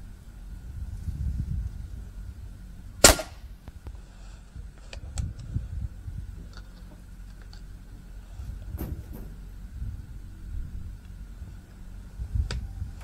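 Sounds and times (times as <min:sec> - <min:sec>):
air rifle shot: 0:03.0 - 0:03.5.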